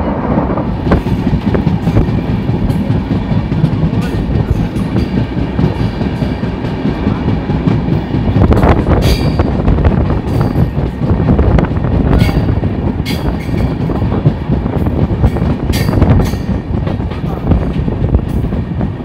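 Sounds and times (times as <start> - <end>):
train wheels rumbling on rails: 0.0 - 19.0
wheels clacking over rail joints: 0.8 - 11.1.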